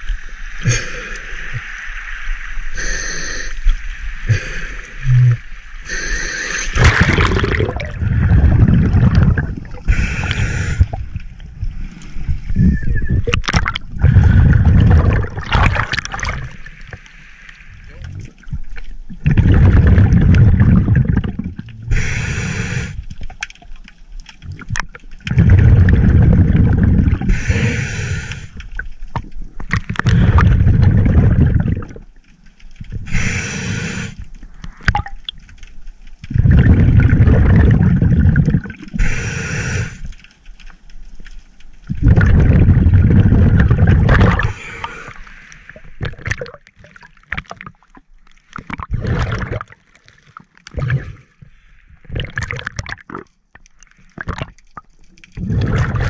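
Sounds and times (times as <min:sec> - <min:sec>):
regulator inhale hiss: 0:02.6 - 0:03.6, 0:05.8 - 0:06.8, 0:09.9 - 0:11.0, 0:21.9 - 0:23.2, 0:27.3 - 0:28.6, 0:33.0 - 0:34.8, 0:39.0 - 0:40.2, 0:44.5 - 0:45.9
exhaled bubbles rumbling: 0:06.6 - 0:17.1, 0:17.7 - 0:23.7, 0:24.4 - 0:33.5, 0:34.4 - 0:35.4, 0:36.2 - 0:39.3, 0:41.8 - 0:56.0.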